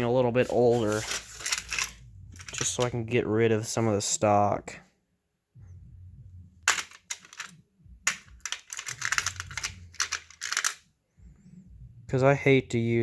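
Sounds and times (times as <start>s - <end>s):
low handling rumble: 0.0s - 3.6s, 5.6s - 6.8s
small parts clicking and rattling: 0.8s - 2.9s, 6.7s - 10.8s.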